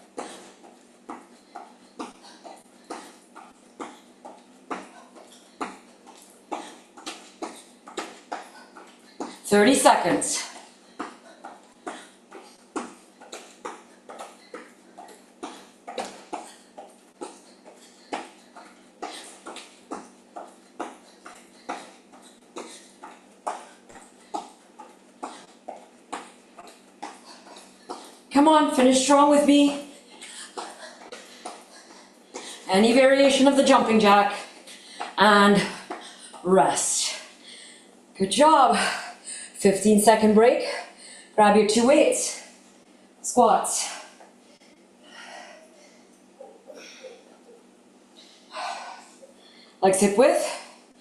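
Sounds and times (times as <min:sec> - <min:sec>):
person breathing hard: 0:01.4 - 0:04.1, 0:29.9 - 0:32.7, 0:34.4 - 0:36.4, 0:37.2 - 0:38.0, 0:40.8 - 0:41.4, 0:44.4 - 0:46.1, 0:48.1 - 0:49.8.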